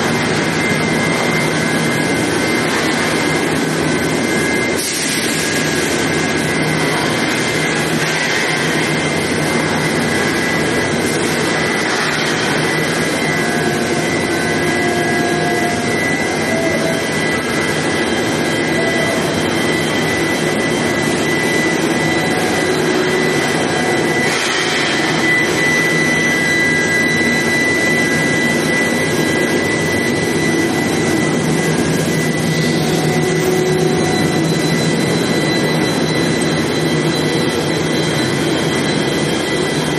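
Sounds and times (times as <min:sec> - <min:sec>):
constant factory rushing noise: 0:00.0 - 0:39.9
high-pitched machine whine: 0:00.0 - 0:39.9.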